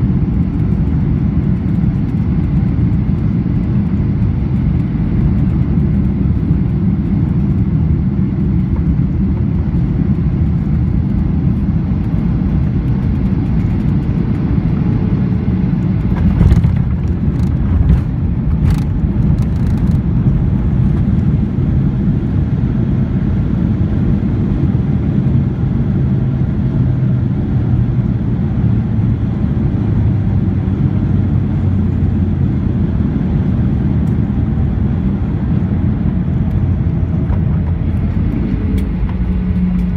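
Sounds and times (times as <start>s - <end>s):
aircraft cabin rumble: 0.0s - 39.9s
knocks and rattles: 16.0s - 20.0s.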